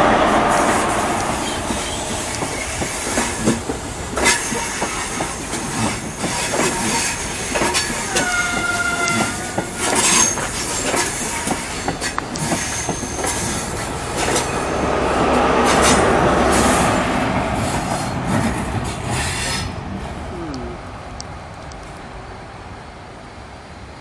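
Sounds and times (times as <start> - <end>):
train coaches rumbling past: 0.0 - 24.0
train wheels squealing: 0.7 - 3.6, 4.2 - 14.8
wheels clicking over rail joints: 1.1 - 14.6.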